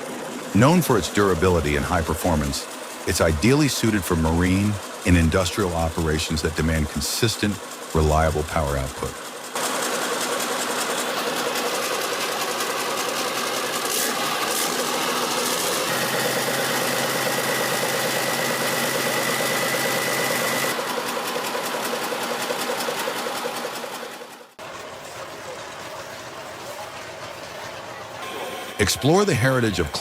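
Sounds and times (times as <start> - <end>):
diesel engine running: 0.0 - 30.0
thin high whine: 24.6 - 30.0.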